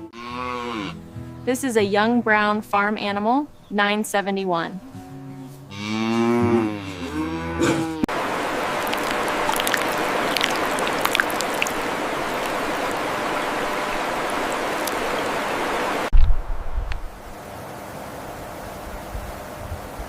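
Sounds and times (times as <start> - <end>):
cow mooing: 0.0 - 1.0, 5.2 - 8.1.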